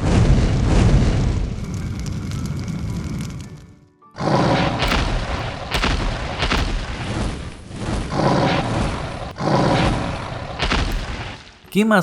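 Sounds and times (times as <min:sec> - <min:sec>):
loud explosion booms: 0:04.8 - 0:09.1.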